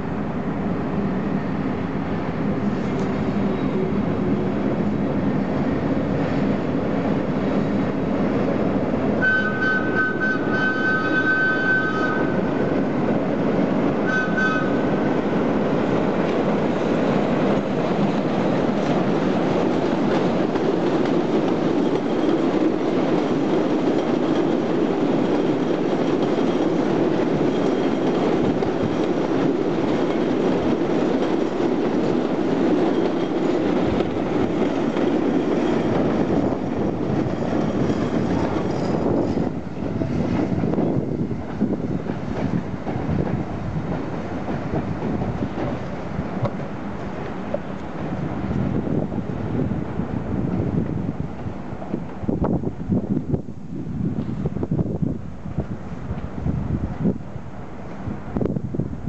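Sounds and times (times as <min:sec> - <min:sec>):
train wheels rumbling on rails: 0:00.0 - 0:59.0
high wheel squeals: 0:09.2 - 0:12.4.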